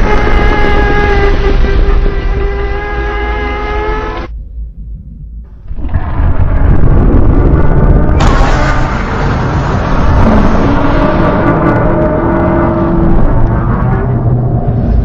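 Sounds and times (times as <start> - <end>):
low rumble: 0.0 - 15.0
monster roar: 9.7 - 14.8.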